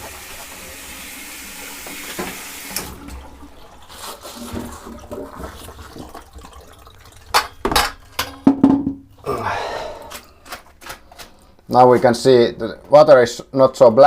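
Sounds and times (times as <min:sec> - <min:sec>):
shower water splashing: 0:00.0 - 0:08.5
sharp knocks and clatters: 0:07.3 - 0:09.1.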